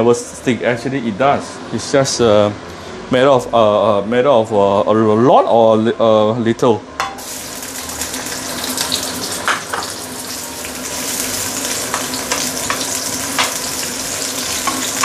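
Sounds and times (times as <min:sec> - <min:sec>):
ginger sizzling in hot oil: 0:07.2 - 0:15.0.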